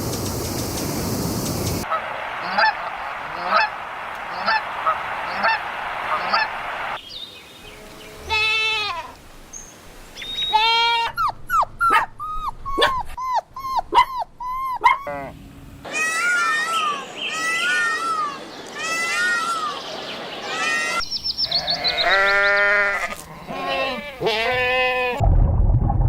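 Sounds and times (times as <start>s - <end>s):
birds honking: 1.8s - 7.0s, 15.2s - 24.0s
puppy whining and yelping: 11.2s - 15.3s.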